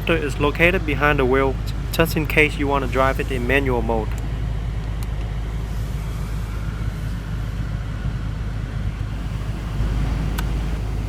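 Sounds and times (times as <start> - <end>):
car engine idling: 0.0 - 6.6, 9.0 - 11.0.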